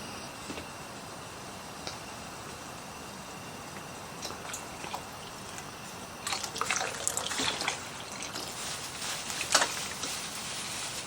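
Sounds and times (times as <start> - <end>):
steady hiss: 7.7 - 11.0.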